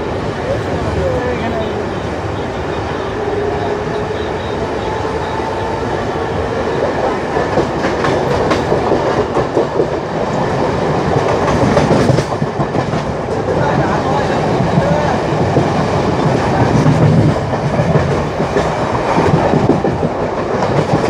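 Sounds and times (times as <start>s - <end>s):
train rumble and rush: 0.0s - 21.0s.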